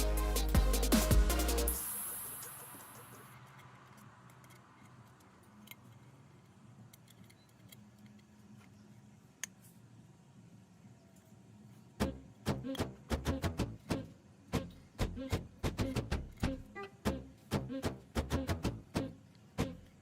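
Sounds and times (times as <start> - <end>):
music: 0.0 - 3.3, 12.0 - 19.8.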